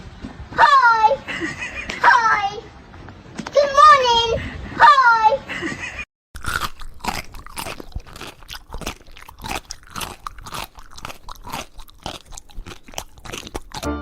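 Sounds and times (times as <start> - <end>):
crunchy chewing: 6.4 - 14.0.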